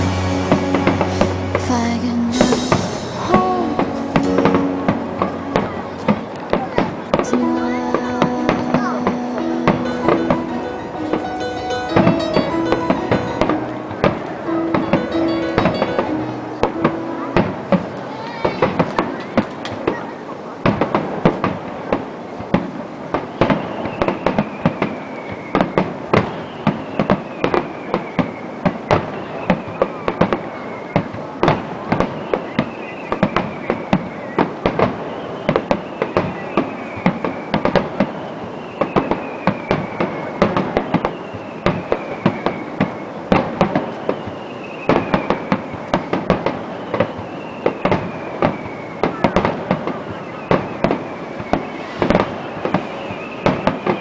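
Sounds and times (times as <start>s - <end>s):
fireworks bangs: 0.0s - 54.0s
faint falling whistle: 35.0s - 43.2s, 46.8s - 54.0s.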